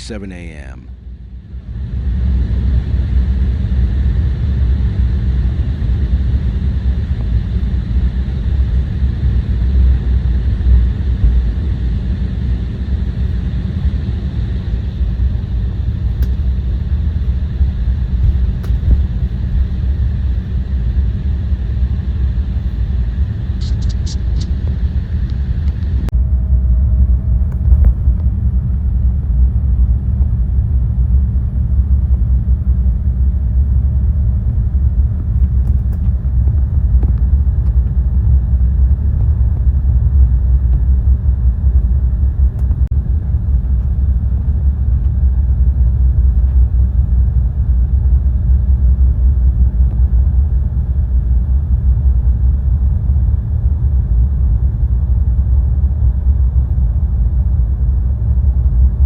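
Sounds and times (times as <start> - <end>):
faint steady hum: 0.0 - 59.0
jet cabin rumble: 0.0 - 59.0.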